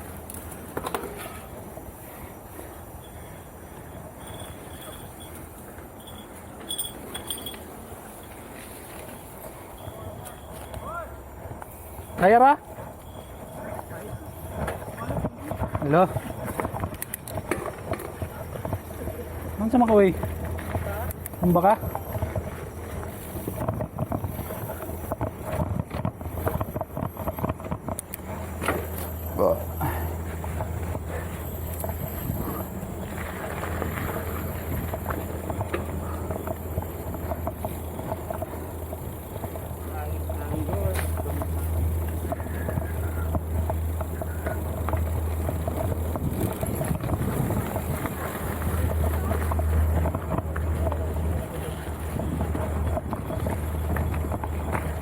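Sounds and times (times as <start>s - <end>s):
mountain bike clattering and rattling: 0.0s - 55.0s
wind buffeting microphone: 12.7s - 28.6s, 29.8s - 55.0s.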